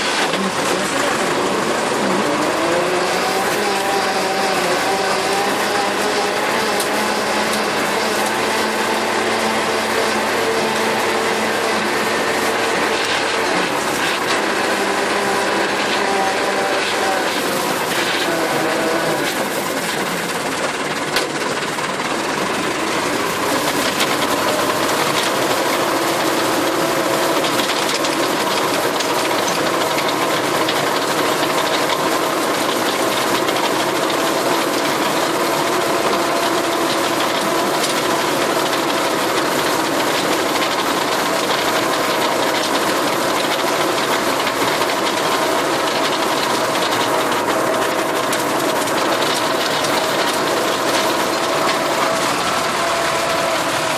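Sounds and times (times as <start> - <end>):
rotary tiller chopping plants: 0.0 - 53.9
tractor engine drone: 0.0 - 53.9.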